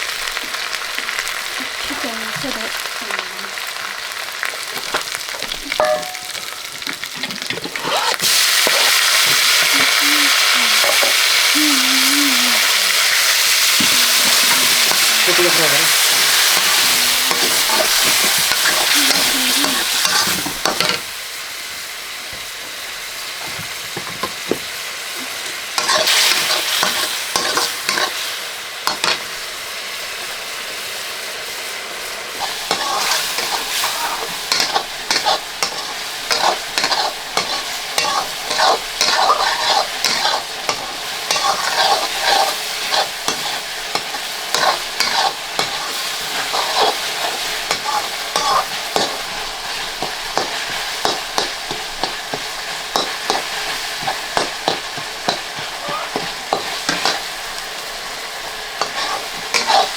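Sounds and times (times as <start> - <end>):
curry sizzling in a pan: 0.0 - 59.9
spoon scraping a pan: 5.7 - 11.3, 13.6 - 21.1, 25.8 - 28.2, 32.4 - 57.4, 58.7 - 59.9.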